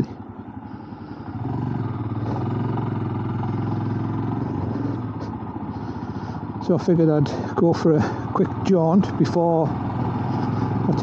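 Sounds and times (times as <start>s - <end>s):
motorcycle engine under throttle: 0.0s - 11.0s.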